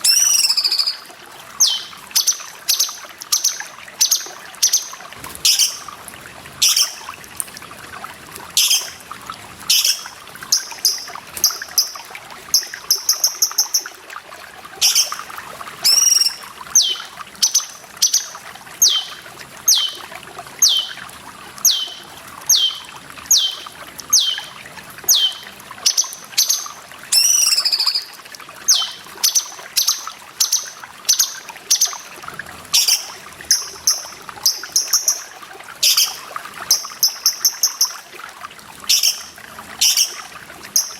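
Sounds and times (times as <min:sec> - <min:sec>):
bird calling with sliding notes: 0:00.0 - 0:05.8, 0:15.8 - 0:20.0, 0:20.6 - 0:21.0, 0:21.6 - 0:28.1, 0:28.7 - 0:32.0
harsh wavering bird calls: 0:00.0 - 0:05.9, 0:06.6 - 0:07.0, 0:08.6 - 0:09.0, 0:09.7 - 0:12.0, 0:14.8 - 0:20.0, 0:20.6 - 0:21.0, 0:21.6 - 0:32.1, 0:32.8 - 0:38.0, 0:38.9 - 0:40.2
water trickling: 0:00.0 - 0:40.9
bird chattering trills: 0:01.6 - 0:04.9, 0:15.8 - 0:20.0, 0:20.6 - 0:21.0, 0:21.6 - 0:24.5, 0:25.1 - 0:26.6, 0:28.7 - 0:32.0.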